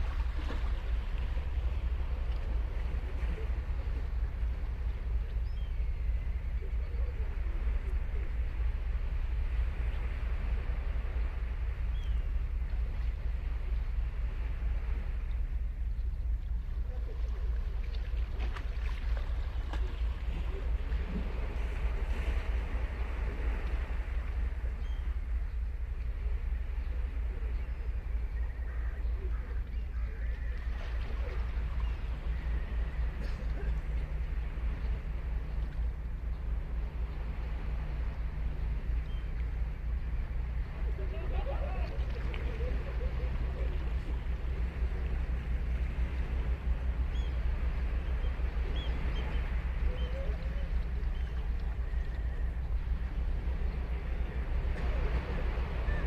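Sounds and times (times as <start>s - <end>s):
waves rumbling on beach: 0.0s - 15.9s, 16.5s - 56.0s
faint bird calls: 0.5s - 14.0s, 15.0s - 56.0s.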